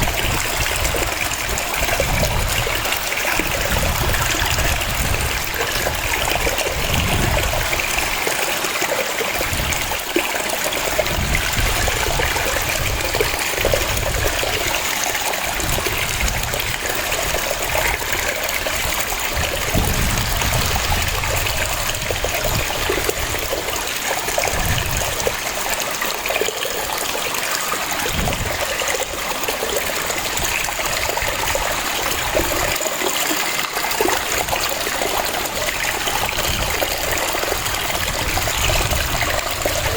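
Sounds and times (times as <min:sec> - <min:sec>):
waterfall cascading and splashing: 0:00.0 - 0:39.9.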